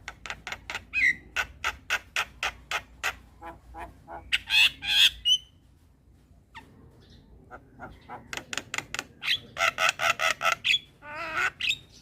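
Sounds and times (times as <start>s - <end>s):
bird harsh squawks: 0.4s - 5.5s.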